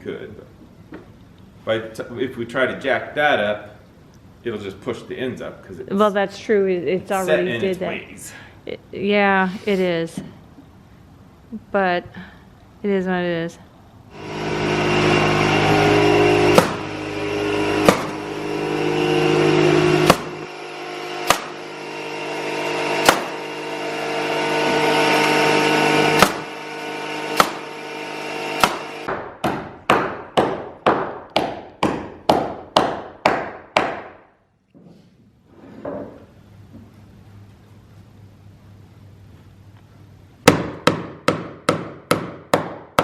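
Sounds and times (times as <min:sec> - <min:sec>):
power tool humming: 0:14.1 - 0:29.1
hammer driving nails: 0:15.7 - 0:18.3, 0:19.0 - 0:34.2, 0:40.5 - 0:43.0
sharp knocks: 0:16.5 - 0:17.0, 0:17.8 - 0:18.3, 0:20.0 - 0:20.5, 0:21.2 - 0:21.7, 0:23.0 - 0:23.5, 0:26.1 - 0:26.5, 0:27.3 - 0:27.7, 0:28.6 - 0:34.2.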